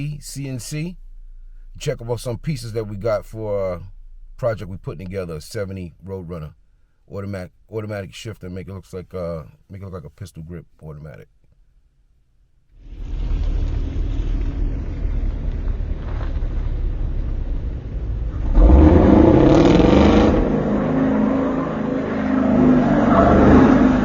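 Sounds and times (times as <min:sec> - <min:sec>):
car engine accelerating: 0:12.8 - 0:24.0.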